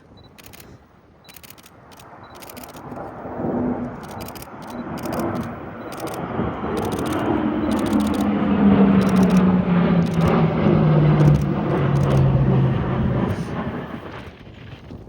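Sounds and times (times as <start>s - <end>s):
jet engine rumble overhead: 0.0s - 15.0s
rapid camera shutter clicks: 0.2s - 3.1s, 4.0s - 8.4s, 9.0s - 10.4s, 11.2s - 12.3s
low tone: 6.8s - 14.0s.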